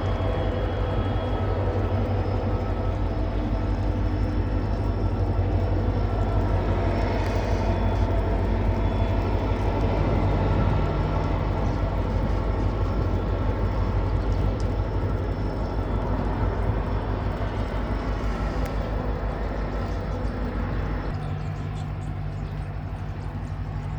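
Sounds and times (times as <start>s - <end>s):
diesel locomotive engine drone: 0.0s - 23.9s
train rumble: 0.0s - 23.9s.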